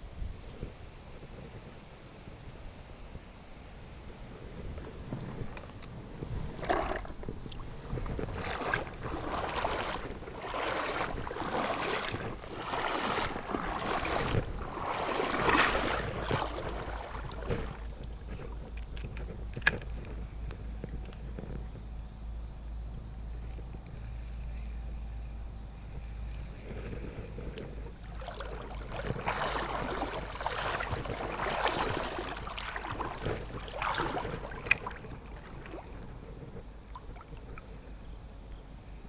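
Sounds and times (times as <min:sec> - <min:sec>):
river water swishing: 0:05.0 - 0:20.2, 0:26.6 - 0:37.9.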